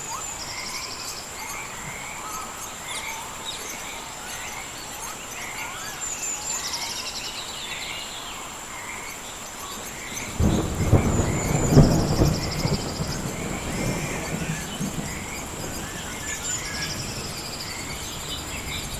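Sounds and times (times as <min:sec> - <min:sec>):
bird calls: 0:00.0 - 0:18.9
frogs chirping: 0:00.0 - 0:18.9
insect whine: 0:00.0 - 0:18.9
thunder clap rumbling: 0:10.2 - 0:18.9.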